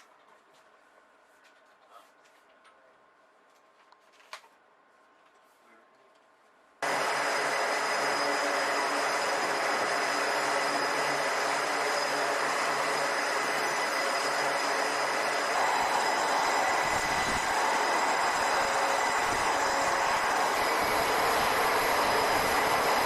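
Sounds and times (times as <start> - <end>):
jet engines running: 6.8 - 23.0.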